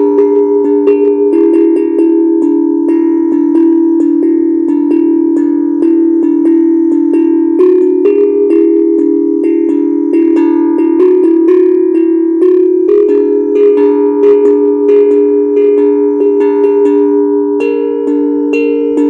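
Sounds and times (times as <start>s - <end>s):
steel tongue drum notes ringing: 0.0s - 19.0s.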